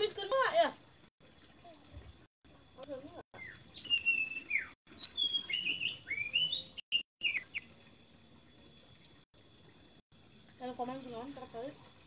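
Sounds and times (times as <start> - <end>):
bird whistling song: 3.4 - 7.8.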